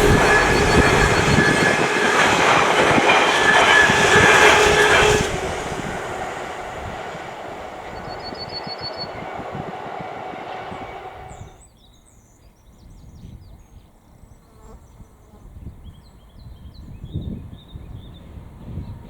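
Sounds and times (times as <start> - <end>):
train rumbling past: 0.0 - 11.6
wind buffeting microphone: 0.0 - 11.6, 15.5 - 19.0.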